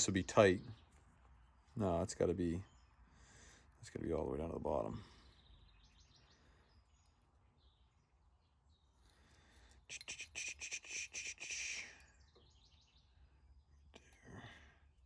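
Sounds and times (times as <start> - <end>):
bird chirping high: 5.2 - 13.9.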